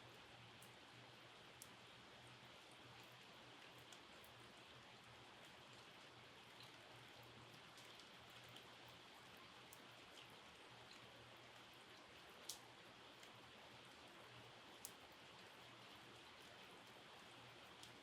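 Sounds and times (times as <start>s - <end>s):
faint steady rain: 0.0s - 18.0s
sharp drips ticking: 5.4s - 13.5s, 14.7s - 17.0s.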